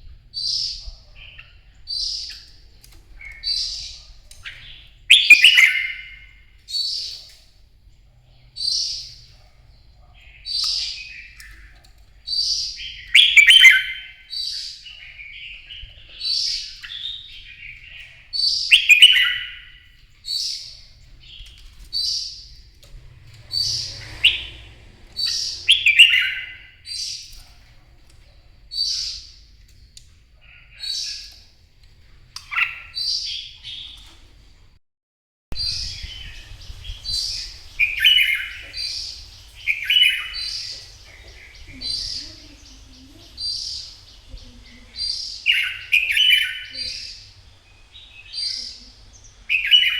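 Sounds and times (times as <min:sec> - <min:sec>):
bird singing whistled phrases: 0:04.4 - 0:06.2, 0:12.9 - 0:14.3, 0:18.7 - 0:19.8, 0:25.3 - 0:26.8.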